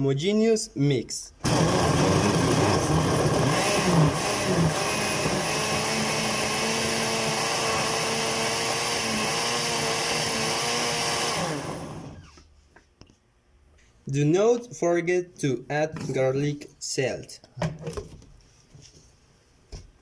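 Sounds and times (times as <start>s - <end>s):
kitchen blender running: 1.4s - 12.4s.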